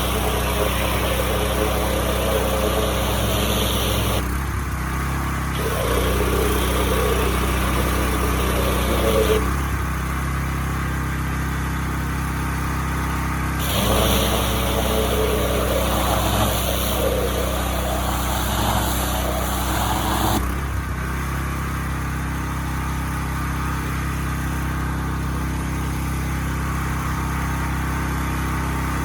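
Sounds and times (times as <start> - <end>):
high-pressure spray hissing: 0.0 - 4.2, 5.6 - 9.4, 13.6 - 20.4
pressure washer engine running: 0.0 - 29.0.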